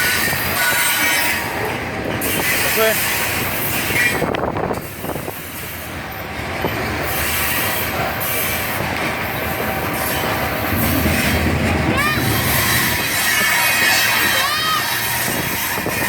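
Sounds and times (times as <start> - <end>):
freight train rolling past: 0.0 - 16.0
high wheel squeal: 9.4 - 16.0.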